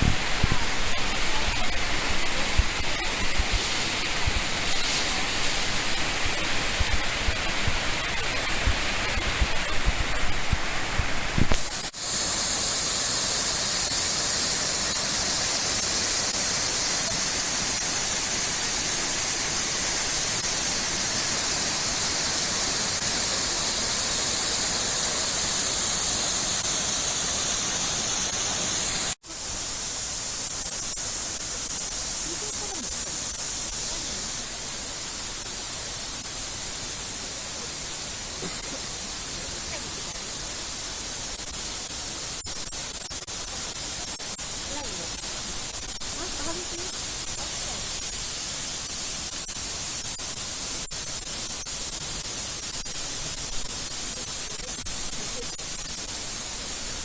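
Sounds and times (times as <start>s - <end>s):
waterfall roaring: 0.2s - 30.2s.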